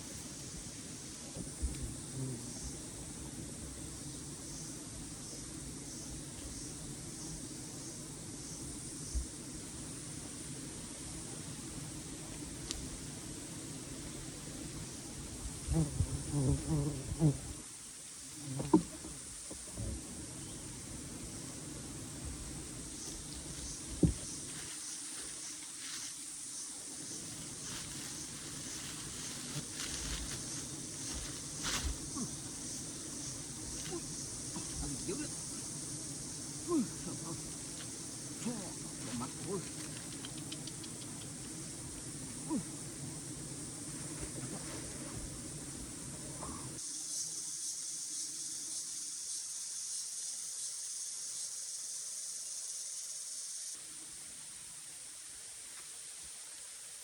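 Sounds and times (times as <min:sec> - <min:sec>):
insects droning: 0:00.0 - 0:57.0
rustling: 0:27.3 - 0:35.5.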